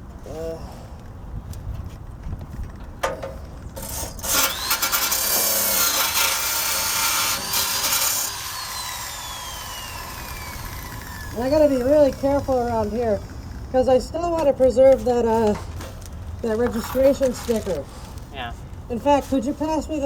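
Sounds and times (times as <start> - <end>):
wire brush scrubbing rust: 3.1 - 14.0
drill motor whining: 3.8 - 14.0.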